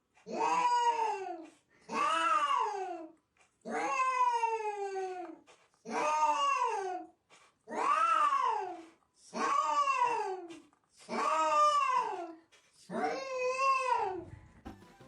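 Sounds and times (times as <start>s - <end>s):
cat yowling: 0.3s - 1.3s, 1.9s - 3.0s, 3.7s - 5.2s, 7.7s - 8.8s
faint music: 14.2s - 15.0s.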